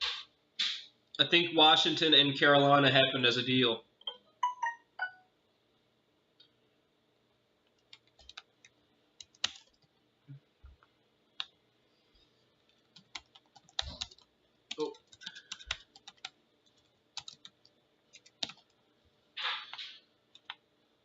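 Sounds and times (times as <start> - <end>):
computer keyboard typing: 7.7 - 10.0, 12.7 - 18.8, 20.3 - 20.6.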